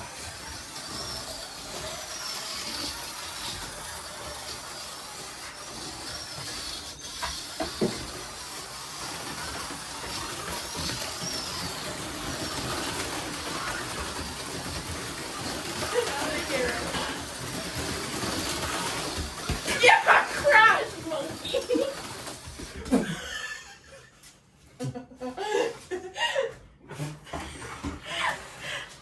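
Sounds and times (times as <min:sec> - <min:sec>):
slot car motors whining: 0:00.0 - 0:22.6.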